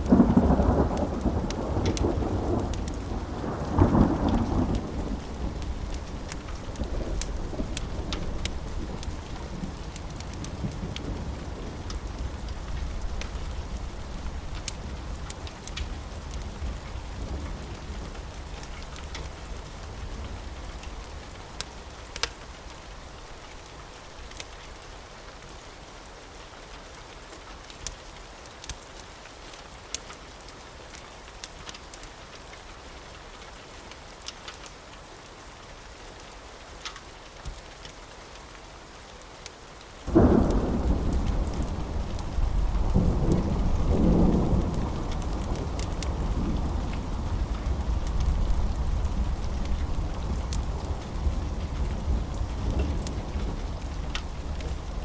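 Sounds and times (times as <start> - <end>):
thunderclap rumbling: 0.0 - 20.4, 40.1 - 55.0
steady rain: 0.0 - 55.0.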